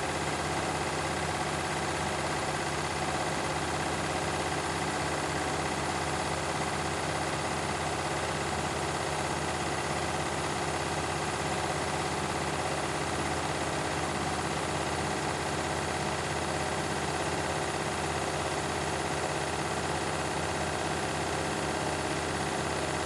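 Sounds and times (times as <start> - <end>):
washing machines spinning: 0.0 - 23.0.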